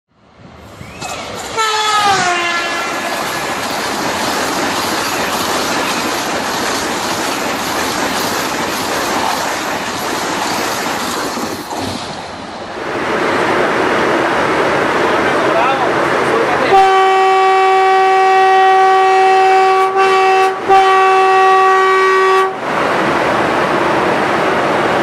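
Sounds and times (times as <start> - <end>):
train rushing past: 0.2 - 25.0
train horn: 1.6 - 3.1, 16.7 - 22.6.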